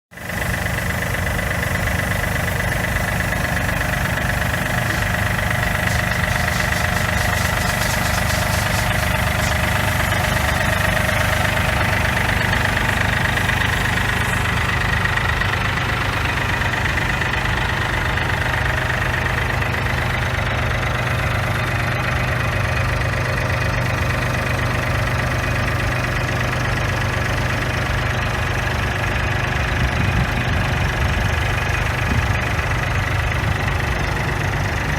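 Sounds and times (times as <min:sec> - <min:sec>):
diesel tractor engine idling: 0:00.1 - 0:34.9
thin high whine: 0:02.5 - 0:14.8.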